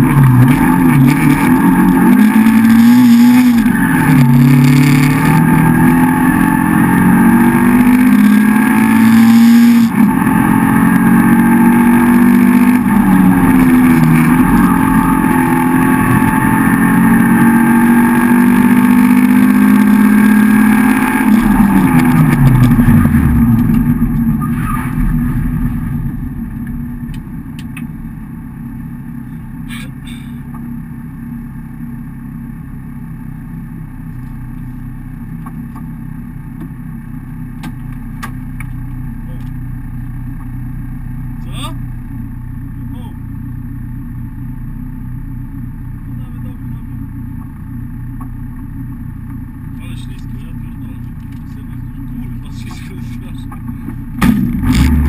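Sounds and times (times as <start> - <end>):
rally car engine revving: 0.0 - 30.8, 45.3 - 55.0.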